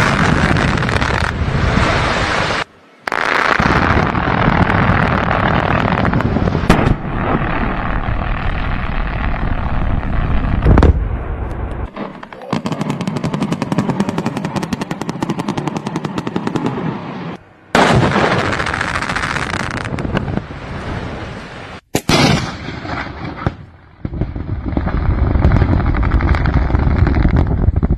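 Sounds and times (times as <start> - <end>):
rapid detonations crackling: 3.1 - 16.8
big blast with rumbling: 3.6 - 15.8, 17.7 - 21.2.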